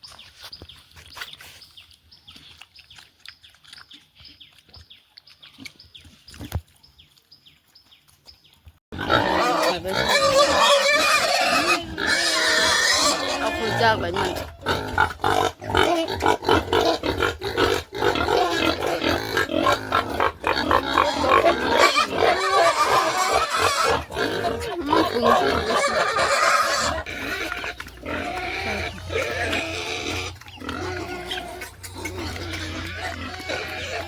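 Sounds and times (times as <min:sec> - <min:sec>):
pigs grunting and squealing: 0:09.0 - 0:34.0.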